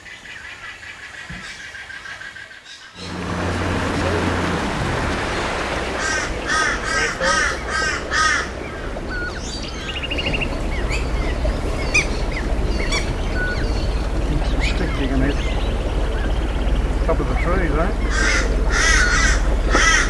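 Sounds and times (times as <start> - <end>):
bird harsh calls: 0.0 - 4.4, 5.2 - 20.0
small birds chirping: 5.1 - 20.0
bird trill: 6.0 - 20.0.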